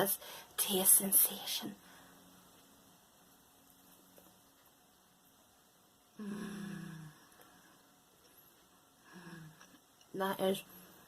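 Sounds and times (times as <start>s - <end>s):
woman humming mmm: 6.2s - 7.2s.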